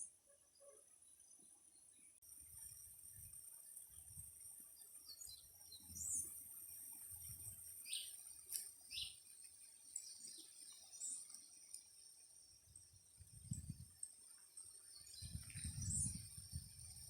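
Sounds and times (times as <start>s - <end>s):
faint bird chirps: 7.8s - 8.3s, 8.9s - 9.2s.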